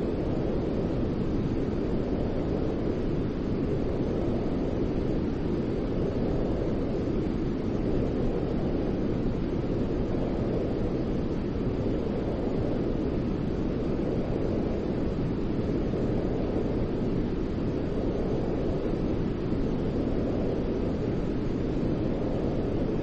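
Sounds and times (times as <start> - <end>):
deep white noise: 0.0 - 23.0.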